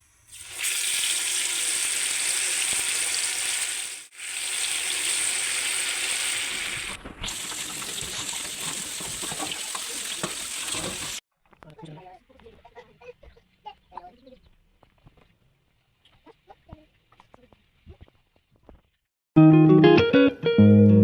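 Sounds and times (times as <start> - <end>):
food sizzling in hot oil: 0.0 - 11.2.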